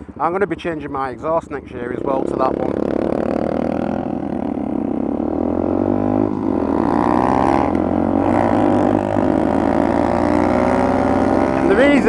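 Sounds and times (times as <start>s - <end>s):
motorcycle engines accelerating: 0.0s - 12.0s.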